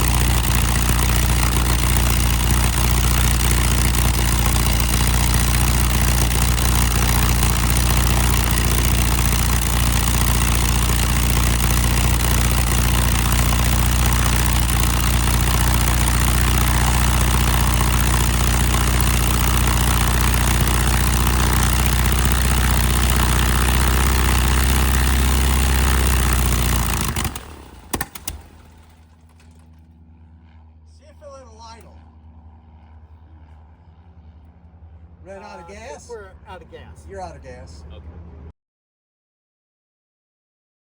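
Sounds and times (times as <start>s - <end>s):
engine spinning down: 0.0s - 29.7s
aircraft engine running: 0.0s - 38.5s.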